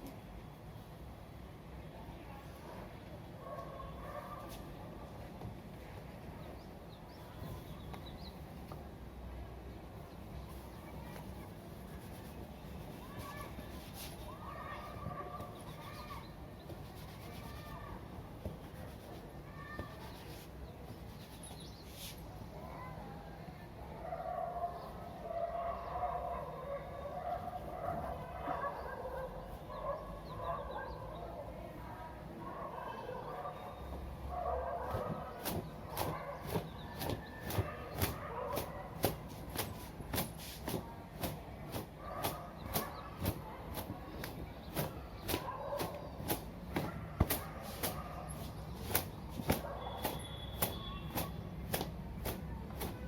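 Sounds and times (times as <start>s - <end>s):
towel rubbing wet hair: 10.5s - 14.4s, 16.7s - 17.8s
faint bird chirps: 49.8s - 51.4s.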